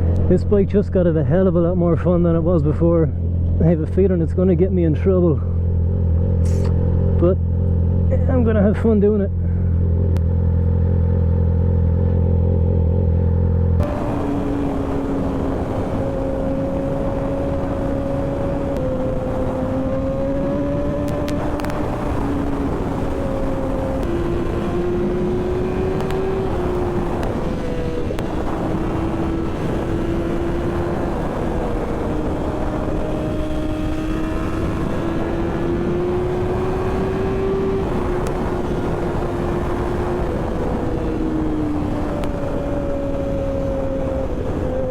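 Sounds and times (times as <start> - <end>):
heavy wind noise: 0.0 - 10.2, 13.8 - 44.9
loud low drone: 0.0 - 44.9
motorcycle engine cruising: 0.0 - 44.9.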